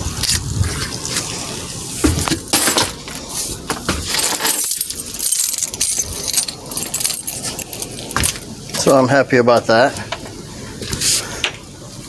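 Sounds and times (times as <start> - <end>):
small hard objects clinking: 4.0 - 8.9.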